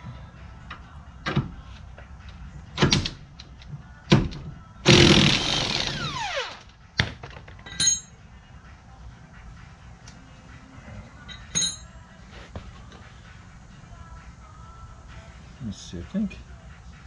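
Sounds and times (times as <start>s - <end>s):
ringing metallic clink: 7.6s - 8.2s, 11.3s - 11.9s.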